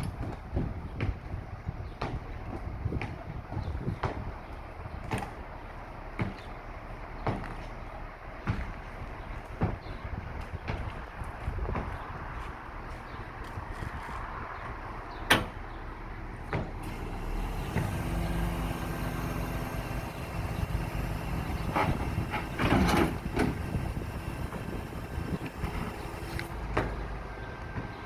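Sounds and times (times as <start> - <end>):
truck diesel engine running: 15.6 - 28.0.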